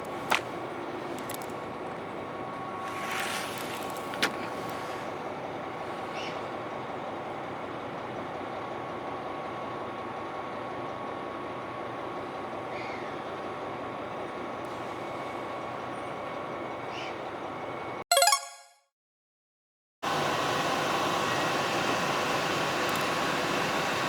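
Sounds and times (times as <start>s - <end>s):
railcar interior noise: 0.0s - 18.0s.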